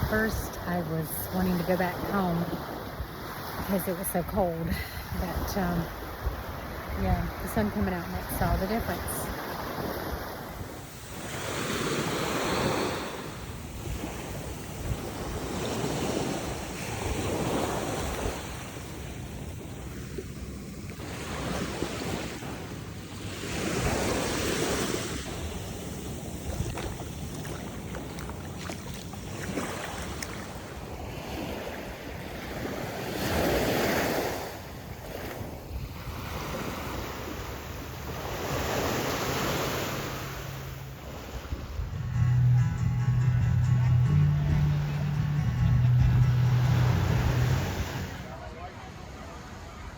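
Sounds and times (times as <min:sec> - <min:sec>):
surf breaking on beach: 0:08.8 - 0:34.6, 0:36.1 - 0:48.4.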